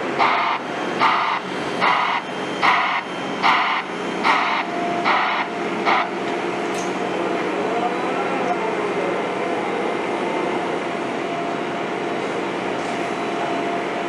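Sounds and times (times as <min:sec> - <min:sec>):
reversing alarm hissing pulses: 0:00.0 - 0:08.4
machine engine hum: 0:00.0 - 0:14.0.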